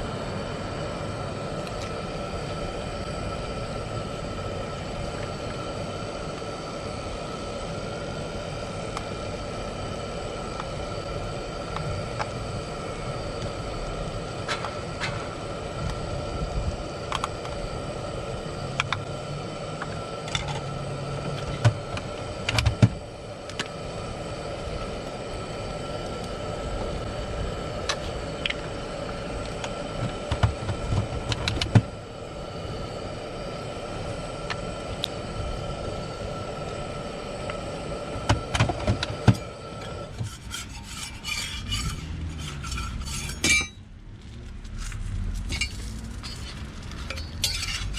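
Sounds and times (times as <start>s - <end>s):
constant machine hum: 0.0s - 47.9s
rubbing and scraping: 40.1s - 43.8s, 45.6s - 47.9s.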